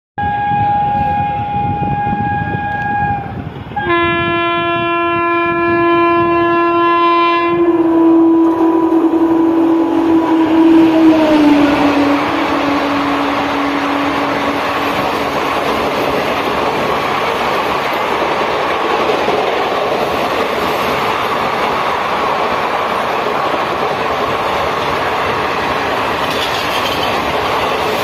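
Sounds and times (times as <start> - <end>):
train wheels clattering on rail joints: 11.6 - 28.0.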